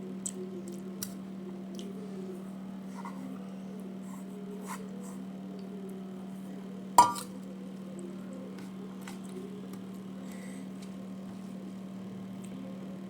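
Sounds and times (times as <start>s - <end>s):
steady low hum: 0.0s - 13.0s
faint clicks of eating: 0.1s - 2.0s, 12.4s - 12.6s.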